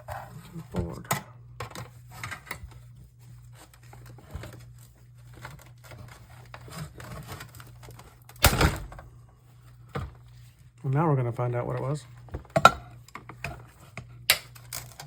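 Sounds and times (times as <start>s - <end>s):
steady low hum: 0.0s - 15.0s
plastic parts clicking and rustling: 11.8s - 15.0s.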